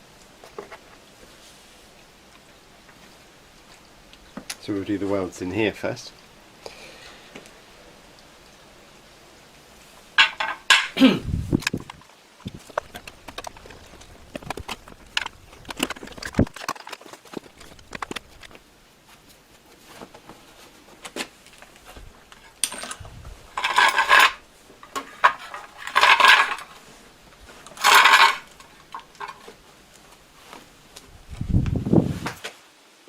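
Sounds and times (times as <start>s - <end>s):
metal parts clattering: 10.2s - 11.0s, 22.4s - 26.8s, 27.6s - 29.5s.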